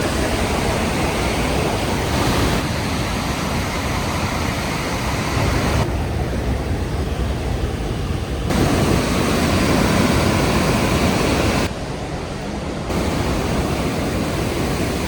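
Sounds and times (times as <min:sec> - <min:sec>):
waterfall roaring: 0:00.0 - 0:05.9, 0:08.5 - 0:11.7, 0:12.9 - 0:15.0.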